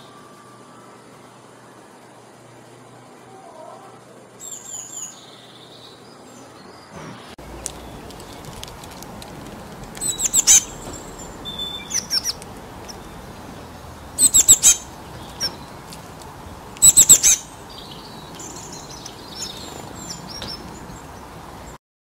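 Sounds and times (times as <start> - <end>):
songbird calling: 3.4 - 8.5, 10.0 - 21.7.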